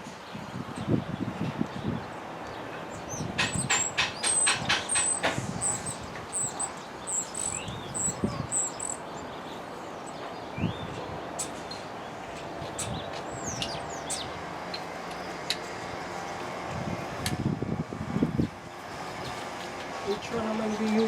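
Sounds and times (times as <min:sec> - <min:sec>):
small bird chirping: 0:02.9 - 0:11.8, 0:12.7 - 0:14.4.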